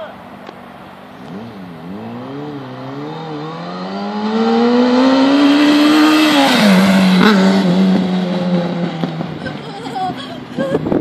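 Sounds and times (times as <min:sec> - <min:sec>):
motorcycle engine revving: 0:01.2 - 0:09.6.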